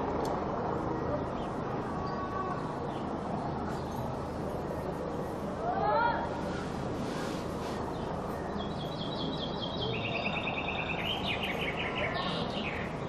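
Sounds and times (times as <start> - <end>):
background noise with low hum: 0.0 - 13.0
bird singing rapid trills: 7.8 - 13.0.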